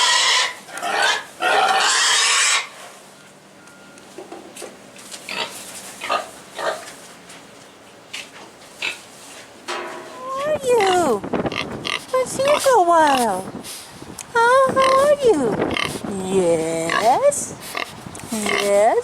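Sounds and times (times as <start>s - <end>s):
pig squealing: 0.0s - 2.8s
pig grunting and snuffling: 5.2s - 6.9s, 10.2s - 13.9s, 14.6s - 18.9s.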